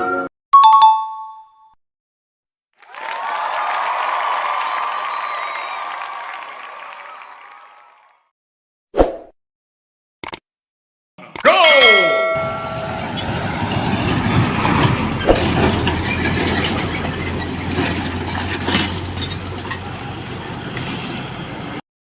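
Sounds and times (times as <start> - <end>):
train rumbling with clicks: 12.2 - 21.8.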